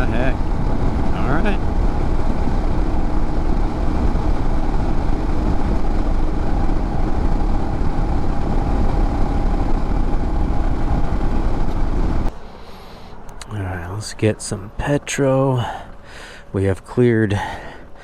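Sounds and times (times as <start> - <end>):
motorcycle engine running: 0.0 - 12.4
wind and road noise: 0.0 - 18.0.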